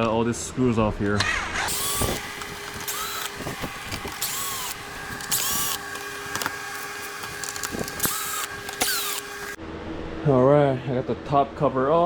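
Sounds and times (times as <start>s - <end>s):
power drill spinning: 1.4s - 9.6s.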